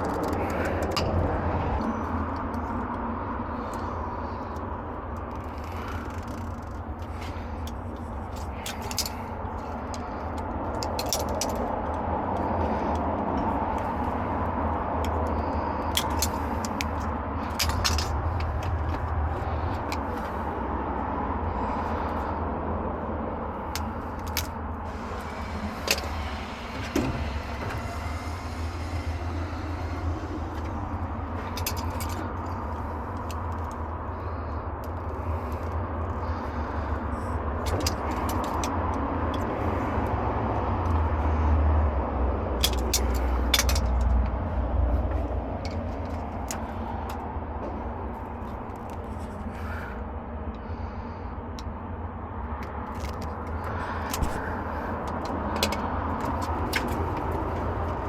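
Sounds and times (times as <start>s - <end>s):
road traffic rumble: 0.0s - 58.0s
metallic clicks of hand tools: 15.0s - 19.0s, 42.6s - 44.2s.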